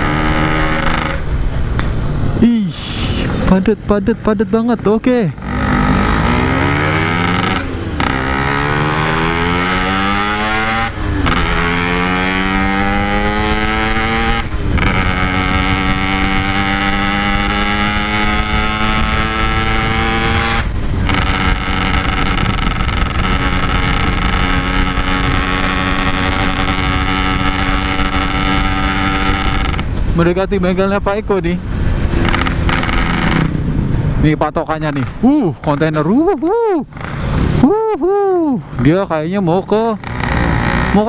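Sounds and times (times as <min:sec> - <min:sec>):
motorcycle accelerating through gears: 0:00.0 - 0:02.4, 0:05.3 - 0:30.2, 0:31.6 - 0:34.2, 0:38.8 - 0:41.0.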